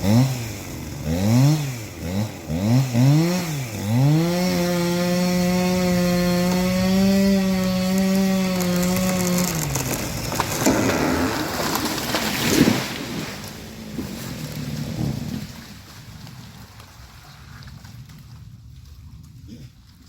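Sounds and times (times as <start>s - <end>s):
chainsaw running: 0.0s - 15.6s
tree cracking and crashing: 0.0s - 18.8s.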